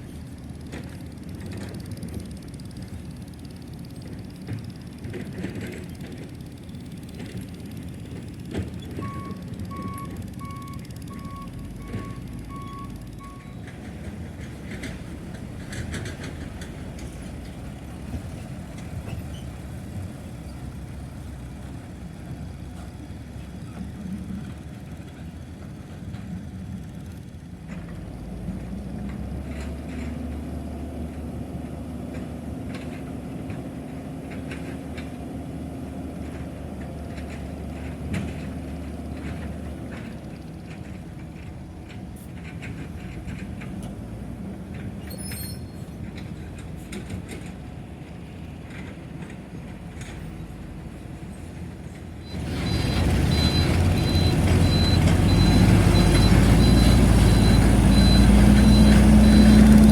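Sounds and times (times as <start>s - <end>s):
diesel machinery engines running: 0.0s - 59.9s
reversing alarm beeps: 9.0s - 13.6s, 52.3s - 59.8s.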